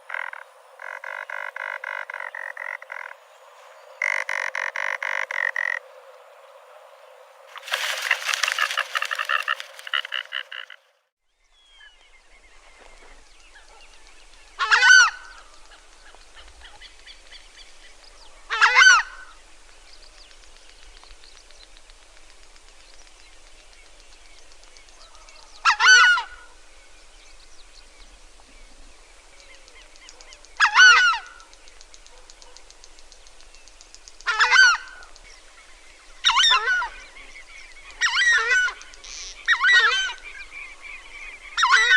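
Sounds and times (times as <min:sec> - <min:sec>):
large bird calling: 0:07.6 - 0:10.9.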